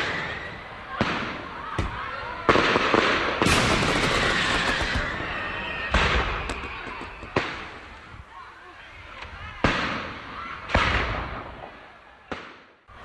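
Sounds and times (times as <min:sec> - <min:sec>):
fireworks bangs: 0:00.0 - 0:08.2, 0:09.6 - 0:12.8
fireworks crackling: 0:00.0 - 0:08.4.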